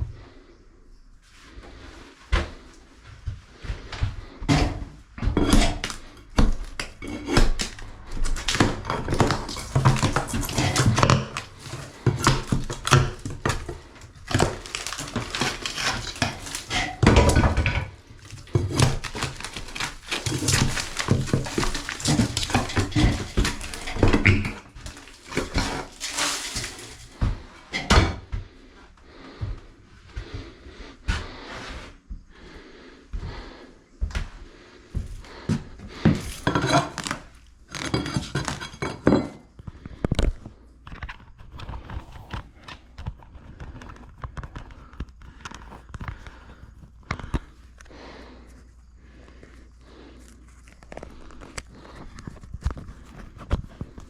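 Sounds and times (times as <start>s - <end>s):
household objects clattering: 3.7s - 28.5s, 35.2s - 47.9s.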